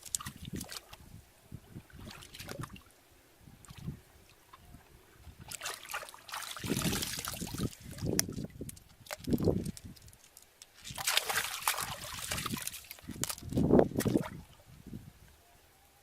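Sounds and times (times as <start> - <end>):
water splashing: 0.0 - 1.0, 1.8 - 2.9, 5.3 - 9.9, 10.8 - 14.6
water sloshing and trickling: 0.0 - 15.0.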